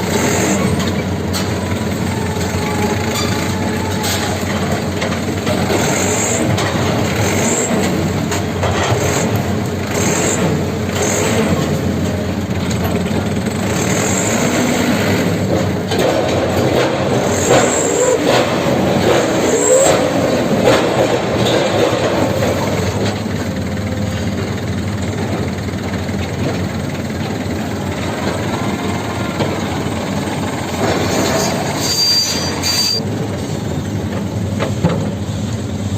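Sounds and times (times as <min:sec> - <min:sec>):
excavator diesel engine running: 0:00.0 - 0:35.9
steel tracks clanking and squealing: 0:00.0 - 0:35.9.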